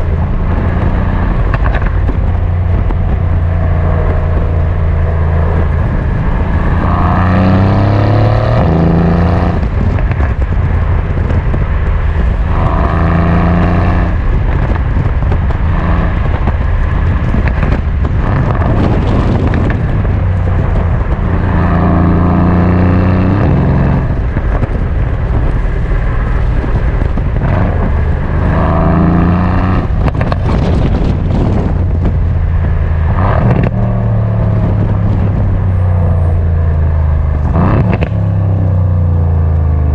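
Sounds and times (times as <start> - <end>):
exhaust pops and crackles: 0.0 - 7.5, 8.2 - 39.9
car engine revving hard: 0.2 - 10.0, 12.2 - 14.6, 15.6 - 24.3, 27.2 - 32.2, 33.1 - 36.4, 37.2 - 38.4.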